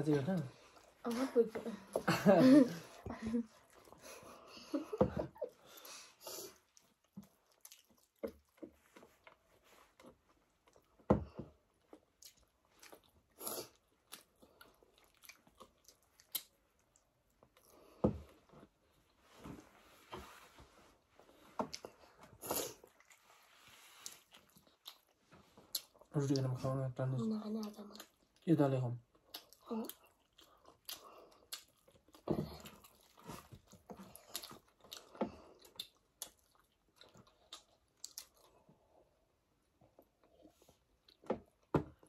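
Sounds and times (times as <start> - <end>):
people chewing food: 0.0 - 42.0.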